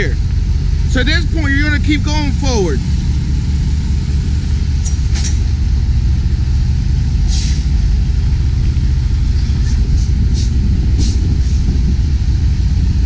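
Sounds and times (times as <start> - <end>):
truck diesel engine running: 0.0 - 13.0
air brake hisses: 7.3 - 7.7.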